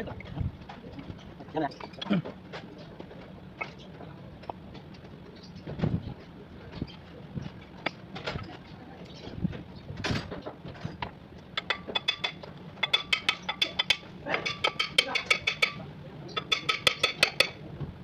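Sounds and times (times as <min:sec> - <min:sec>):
hand tools clicking on metal: 0:11.6 - 0:17.6.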